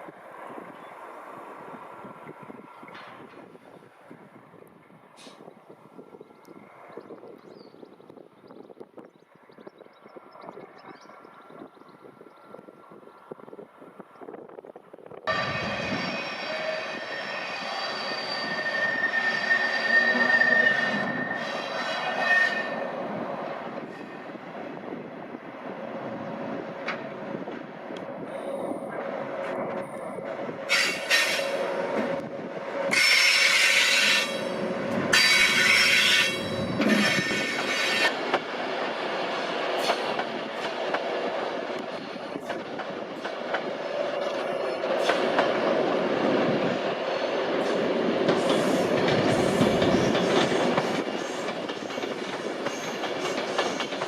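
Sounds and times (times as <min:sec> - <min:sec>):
wheels rumbling on rails: 0:00.0 - 0:54.0
train wheel squeal: 0:15.3 - 0:23.0, 0:30.7 - 0:31.8, 0:32.9 - 0:38.2, 0:48.4 - 0:54.0
wheels clacking over rail joints: 0:34.9 - 0:54.0.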